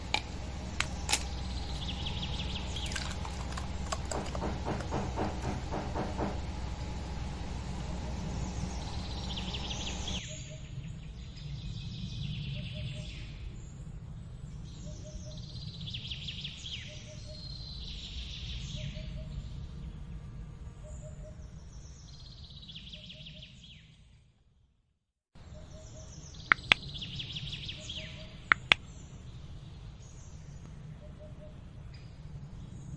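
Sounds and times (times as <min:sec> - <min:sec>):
steady low hum: 0:00.0 - 0:10.2
birds chirping: 0:00.0 - 0:10.4, 0:25.5 - 0:32.1
sharp clicks: 0:26.5 - 0:26.8, 0:28.5 - 0:28.8.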